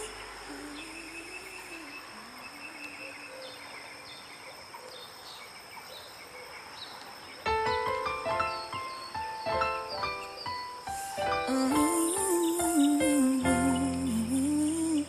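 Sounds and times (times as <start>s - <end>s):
low wavering hum: 11.5s - 15.0s.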